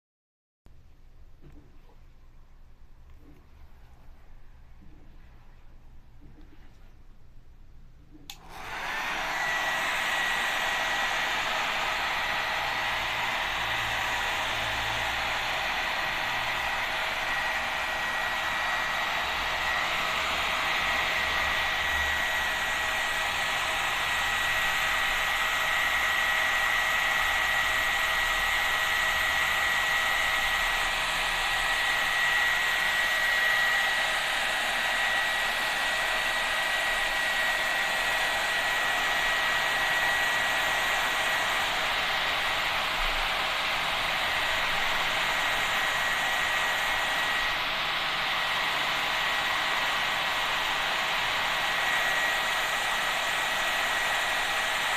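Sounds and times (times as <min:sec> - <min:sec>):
hair dryer blowing: 0:08.2 - 0:54.9.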